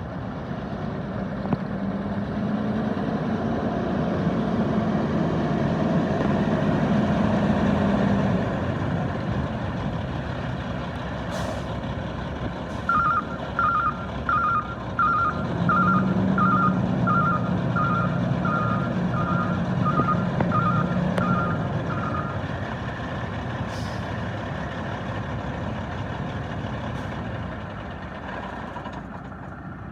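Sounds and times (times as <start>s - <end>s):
diesel truck engine running: 0.0s - 29.9s
backup alarm beeping: 12.9s - 22.4s.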